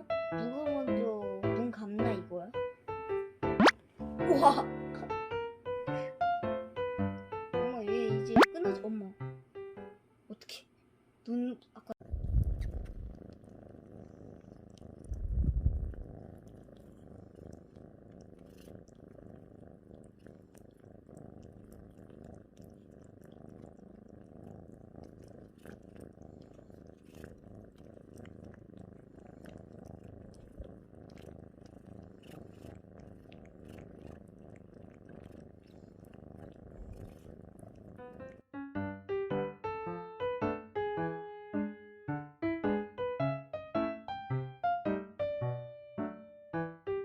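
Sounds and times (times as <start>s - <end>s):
cat purring: 0.0s - 9.1s, 11.3s - 38.5s.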